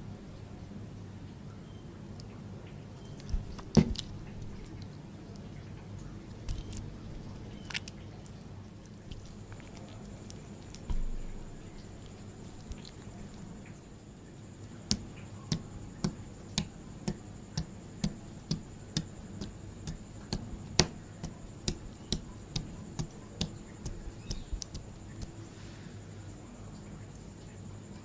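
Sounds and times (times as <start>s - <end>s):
slime squeezed popping: 6.4s - 8.0s.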